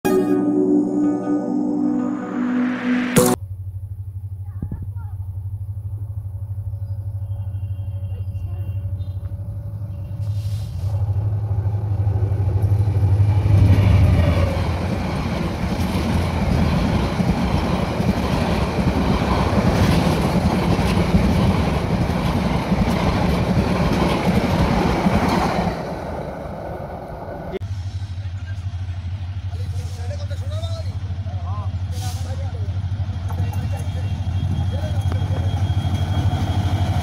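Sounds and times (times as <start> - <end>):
diesel locomotive engine hum: 0.1 - 37.0
train wheels clattering on rails: 12.4 - 25.8, 33.1 - 37.0.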